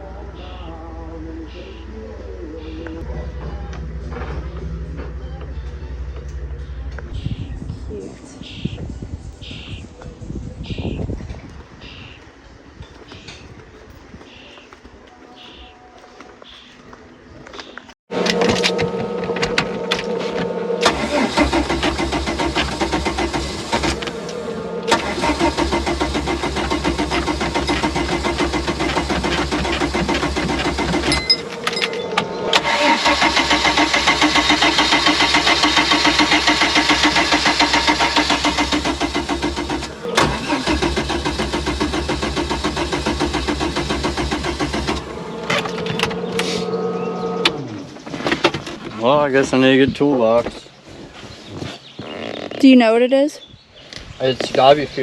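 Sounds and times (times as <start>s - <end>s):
boat engine cranking on starter: 18.1s - 48.7s.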